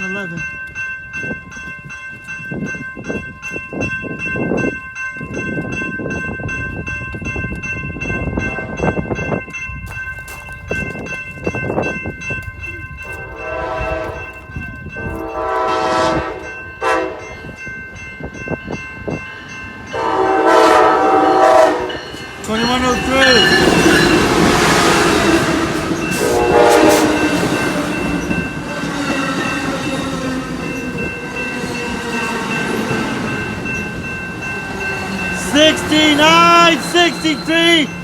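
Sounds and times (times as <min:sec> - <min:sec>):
locomotive horn blasts: 0:13.1 - 0:14.3, 0:15.2 - 0:17.3, 0:19.9 - 0:22.0, 0:26.1 - 0:27.6
train wheels clicking on rails: 0:21.8 - 0:38.0.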